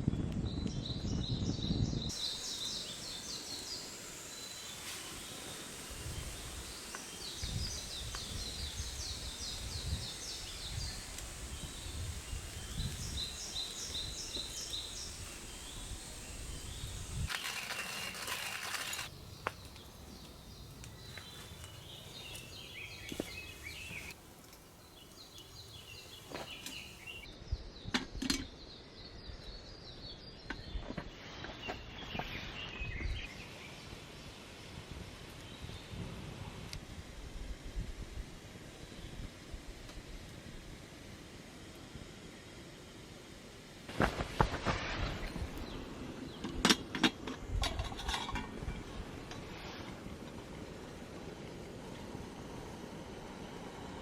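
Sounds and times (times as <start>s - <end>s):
outdoor ambience hiss: 0.1s - 54.0s
cicadas calling: 2.1s - 27.3s.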